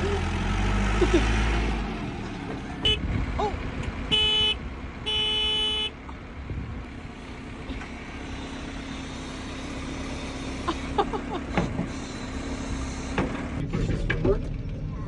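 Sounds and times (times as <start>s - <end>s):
tractor engine running: 0.0s - 15.0s
tractor horn: 2.6s - 3.2s, 4.0s - 6.1s.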